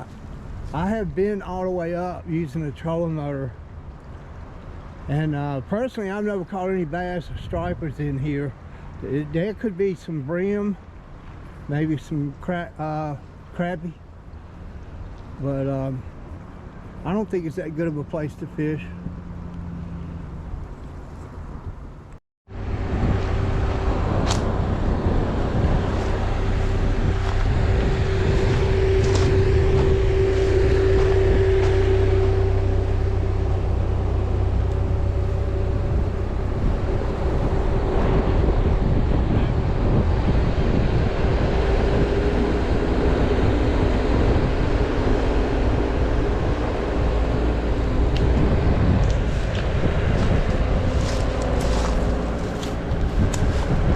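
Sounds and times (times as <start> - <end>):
vehicle engine droning: 0.0 - 53.9
wind noise on microphone: 19.9 - 53.9.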